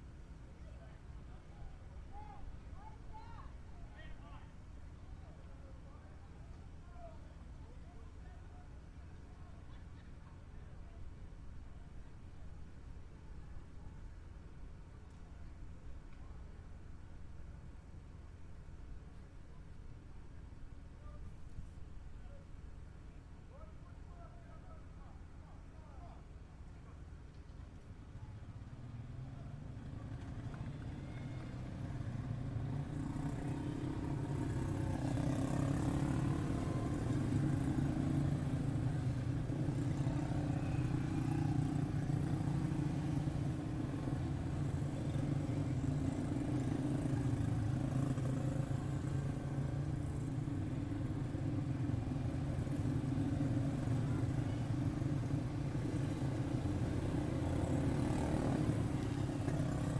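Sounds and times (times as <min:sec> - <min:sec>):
race car engines droning: 0:29.4 - 0:59.9.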